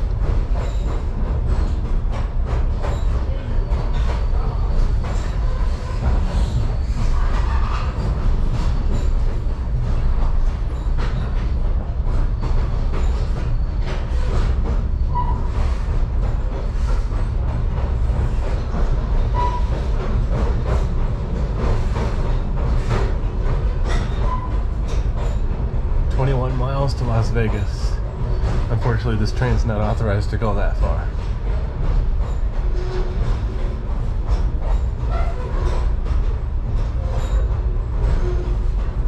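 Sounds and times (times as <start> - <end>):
train wheels rumbling on track: 0.0 - 39.0
high wheel squeaks: 12.4 - 15.9, 18.4 - 19.9.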